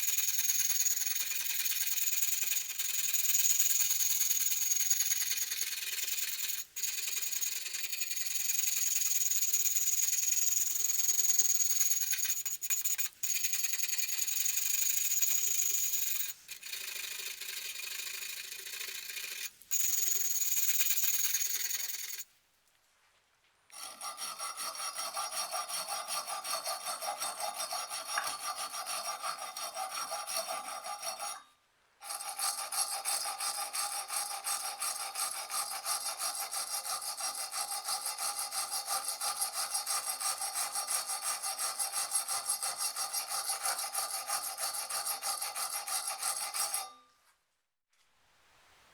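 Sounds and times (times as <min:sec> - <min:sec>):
hand rubbing and scraping: 0:11.5 - 0:22.2.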